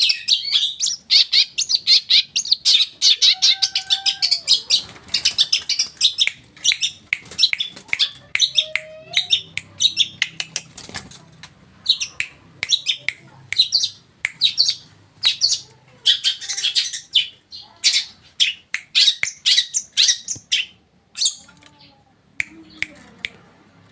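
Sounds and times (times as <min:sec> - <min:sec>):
bird singing high chattering notes: 0:11.8 - 0:15.6.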